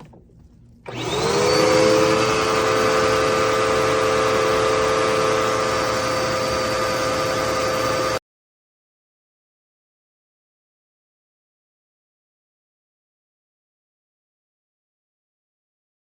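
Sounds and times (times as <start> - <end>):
vacuum cleaner motor whining: 0.0 - 8.2.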